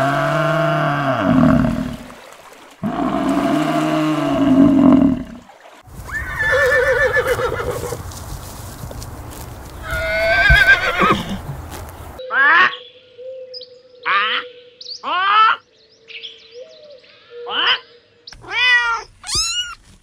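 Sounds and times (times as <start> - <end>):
buffalo mooing: 0.0 - 2.1, 2.8 - 5.4
horse whinnying: 6.1 - 8.0, 9.8 - 11.5.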